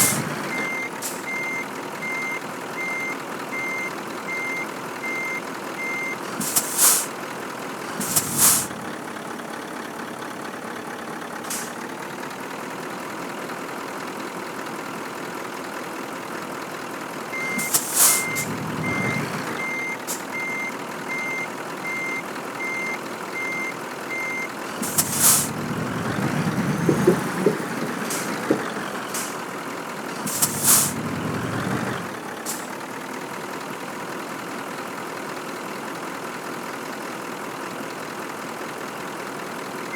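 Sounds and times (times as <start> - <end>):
air brake hisses: 0.0 - 0.4, 1.0 - 1.3, 6.3 - 7.2, 7.9 - 8.8, 11.4 - 11.8, 17.5 - 19.2, 20.1 - 20.3, 24.7 - 29.5, 30.2 - 31.7, 32.4 - 32.8
truck reversing alarm beeps: 0.0 - 7.1, 17.3 - 29.6
truck engine running: 0.0 - 39.9.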